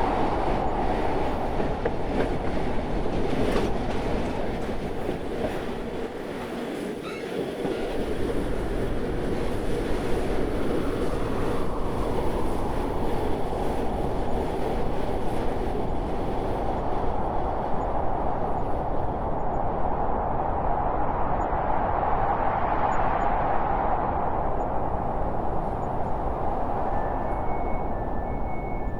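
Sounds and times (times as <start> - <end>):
train rumbling on rails: 0.0 - 28.9
faint high wheel squeal: 6.9 - 8.0, 25.8 - 28.9.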